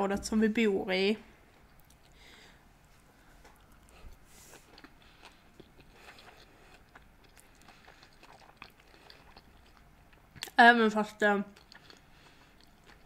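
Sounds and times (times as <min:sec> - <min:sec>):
soft mouth clicks chewing: 0:01.6 - 0:02.2, 0:03.4 - 0:10.6, 0:11.5 - 0:13.0.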